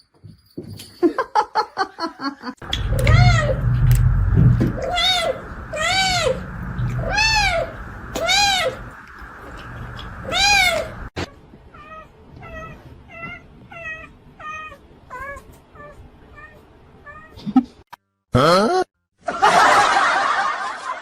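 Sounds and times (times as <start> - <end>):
cat meowing: 4.8 - 8.9, 10.2 - 11.0.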